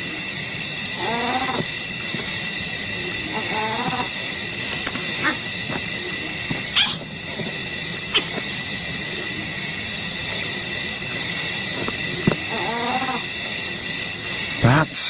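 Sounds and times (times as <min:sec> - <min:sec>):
high-pitched chirring drone: 0:00.0 - 0:15.0
wavering cry-like animal call: 0:00.9 - 0:01.8, 0:03.0 - 0:07.2, 0:12.1 - 0:13.5
short animal calls: 0:06.8 - 0:07.1.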